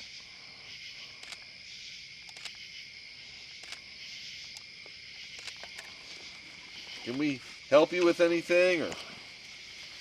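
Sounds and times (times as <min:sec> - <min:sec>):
insect chorus drone: 0:00.0 - 0:10.0
light clicks: 0:02.2 - 0:02.6, 0:03.6 - 0:03.8, 0:05.3 - 0:06.0.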